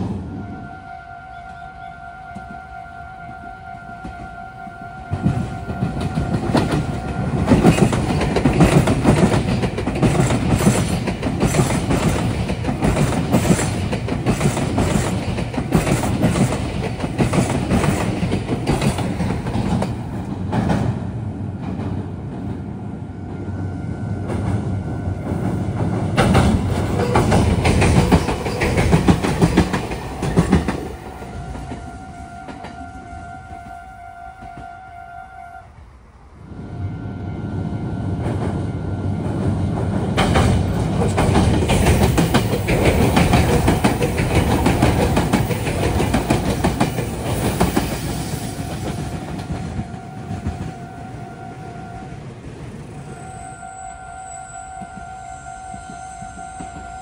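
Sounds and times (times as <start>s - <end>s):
train wheels clattering on track: 5.0s - 23.6s, 24.2s - 33.8s, 38.1s - 53.1s, 54.7s - 57.0s
level crossing warning bell: 53.0s - 57.0s.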